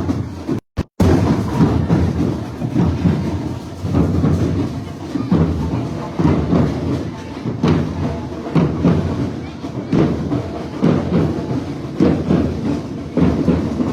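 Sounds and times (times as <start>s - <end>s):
parade drums and percussion: 0.0s - 13.9s.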